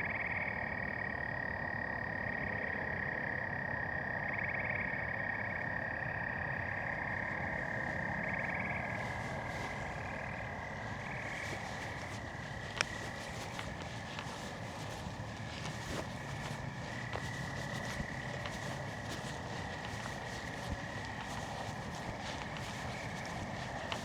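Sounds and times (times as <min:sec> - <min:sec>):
frogs trilling: 0:00.0 - 0:24.0
footsteps crunching on path: 0:06.8 - 0:24.0.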